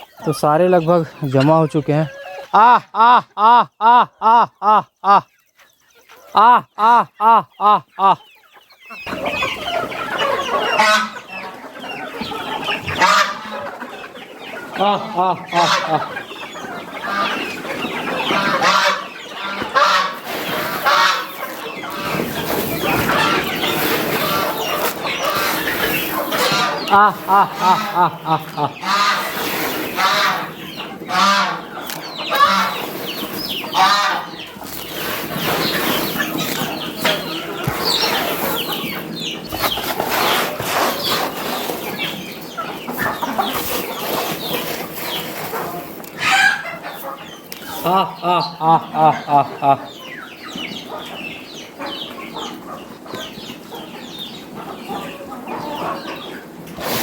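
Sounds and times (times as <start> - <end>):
chickens clucking: 0.0 - 57.0
rustling noise: 19.6 - 27.3, 34.5 - 42.2, 42.8 - 46.2.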